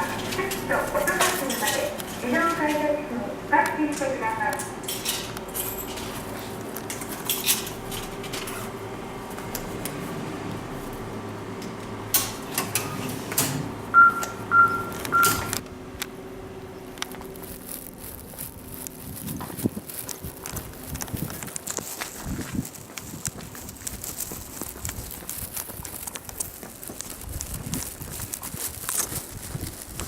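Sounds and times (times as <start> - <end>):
electrical hum: 0.0 - 30.0
card reader beeping: 12.3 - 15.6.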